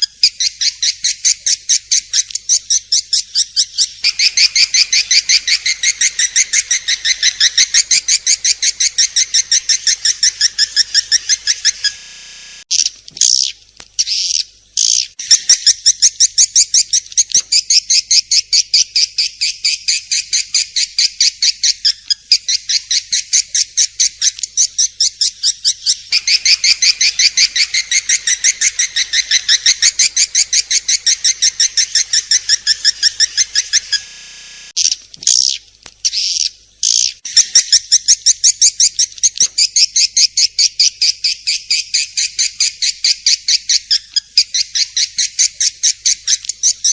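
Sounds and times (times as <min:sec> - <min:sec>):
swiftlet chirping: 0:04.0 - 0:12.7, 0:26.1 - 0:34.8.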